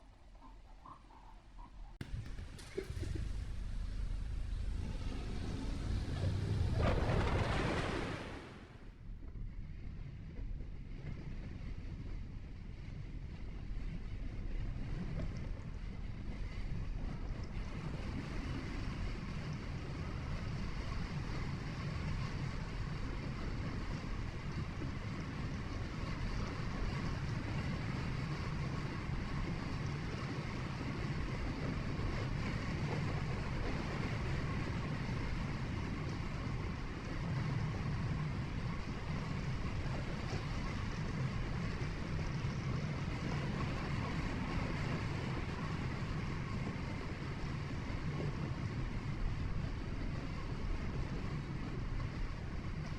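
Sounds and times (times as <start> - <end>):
tyre and engine rumble: 0.2 - 9.5
wind hiss: 2.0 - 8.9.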